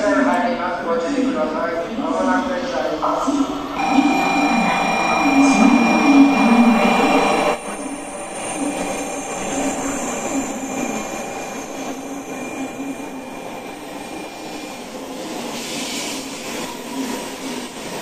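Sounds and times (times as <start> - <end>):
train rumbling into station: 0.0 - 18.0
thin high tone: 3.8 - 15.6.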